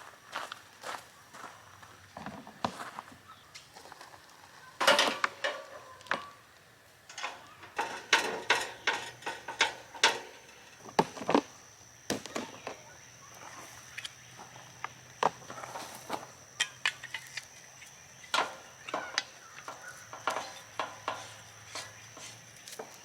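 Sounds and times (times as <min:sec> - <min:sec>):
objects knocking and clattering: 0:07.1 - 0:11.5, 0:18.3 - 0:21.9.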